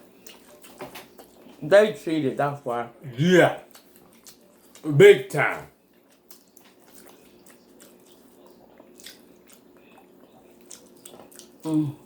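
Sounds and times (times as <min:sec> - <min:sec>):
wet chewing and mouth smacks: 0:00.0 - 0:01.6, 0:03.6 - 0:04.9, 0:05.8 - 0:11.8.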